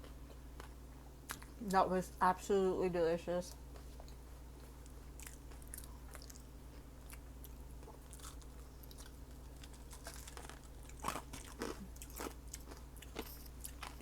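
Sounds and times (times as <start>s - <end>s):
faint low hum: 0.0s - 14.0s
chewing food: 3.7s - 14.0s.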